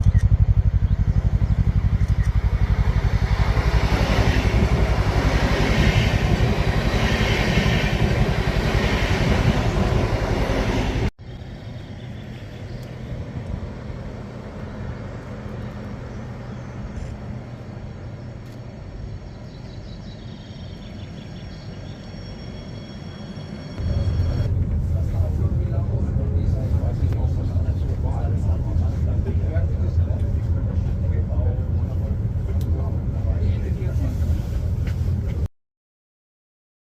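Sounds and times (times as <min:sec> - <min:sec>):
train wheels rumbling on rails: 0:00.0 - 0:11.4, 0:20.6 - 0:35.5.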